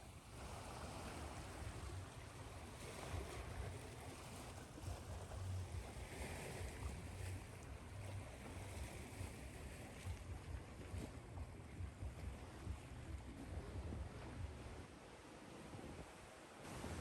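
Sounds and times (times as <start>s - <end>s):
steady white-noise hiss: 13.6s - 17.0s.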